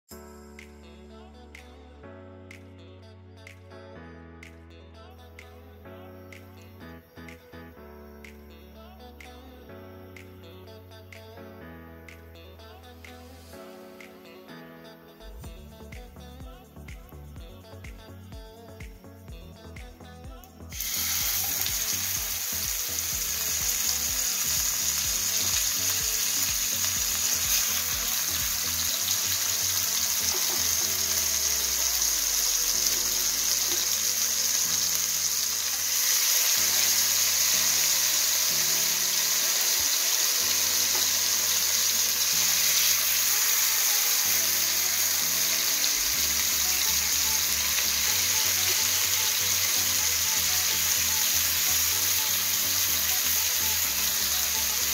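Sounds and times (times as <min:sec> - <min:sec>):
faint background music bass line: 0:00.1 - 0:54.9
chicken frying in hot oil: 0:20.7 - 0:54.9.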